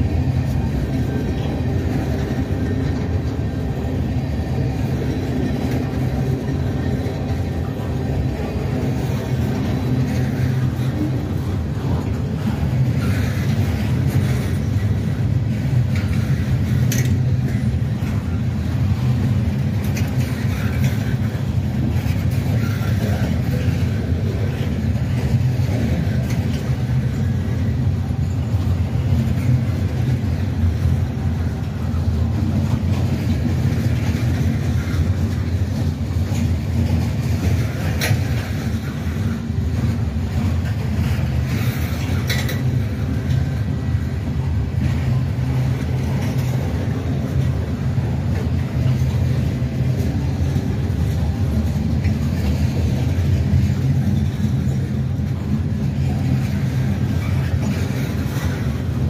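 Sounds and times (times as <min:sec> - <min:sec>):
diesel train engine drone: 0:00.0 - 0:59.0.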